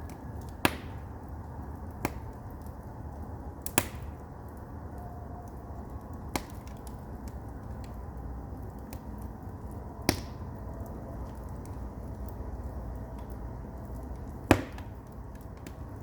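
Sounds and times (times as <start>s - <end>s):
fire rumbling and crackling: 0.0s - 16.0s
sharp pops of firewood: 0.5s - 1.0s, 3.6s - 4.1s, 10.0s - 10.4s, 14.4s - 15.8s.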